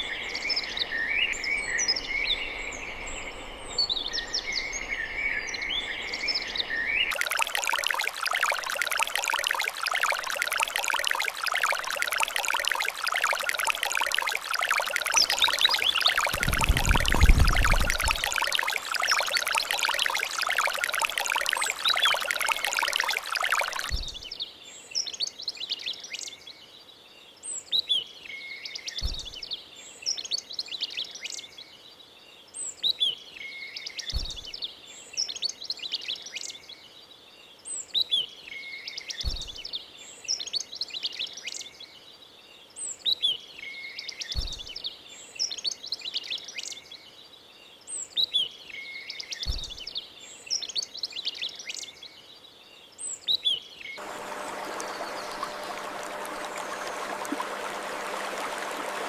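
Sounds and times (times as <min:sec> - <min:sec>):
small birds chirping: 0:00.0 - 0:24.5, 0:44.2 - 0:57.4
pouring water rushing: 0:07.1 - 0:24.1, 0:54.0 - 0:59.0.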